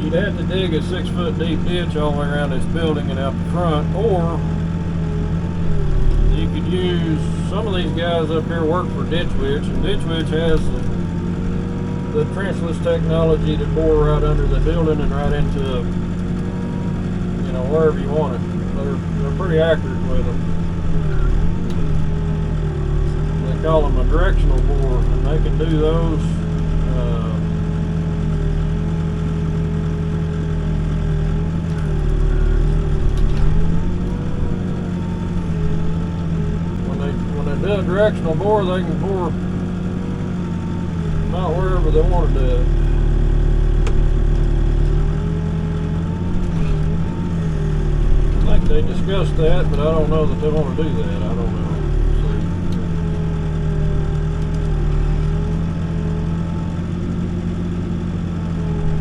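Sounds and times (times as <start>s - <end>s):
wavering whine: 0.0s - 30.5s, 31.1s - 59.0s
diesel engine running: 0.0s - 59.0s
sharp clicks: 52.4s - 55.6s.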